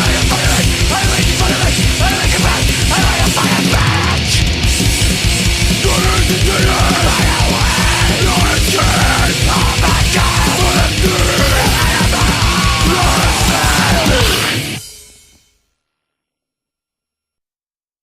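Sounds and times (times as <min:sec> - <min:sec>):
shouted vocals: 0:00.0 - 0:04.4, 0:05.8 - 0:14.7
fast drum beat: 0:00.0 - 0:14.9
distorted guitars: 0:00.0 - 0:15.4.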